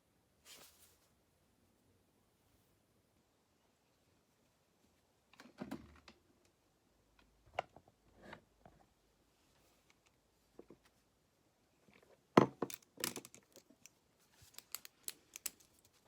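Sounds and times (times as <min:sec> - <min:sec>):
faint clicks of objects handled: 0:09.5 - 0:11.0, 0:11.8 - 0:16.0.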